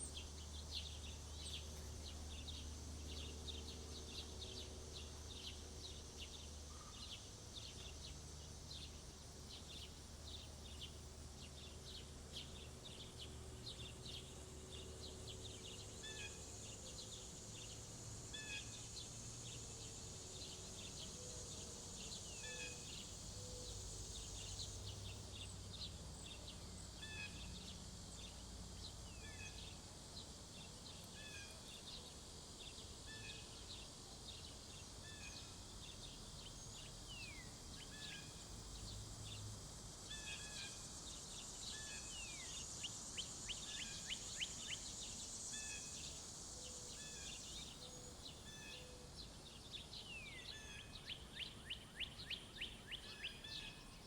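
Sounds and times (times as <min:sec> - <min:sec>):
high insect drone: 0:00.0 - 0:54.0
small birds chipping: 0:18.6 - 0:54.0.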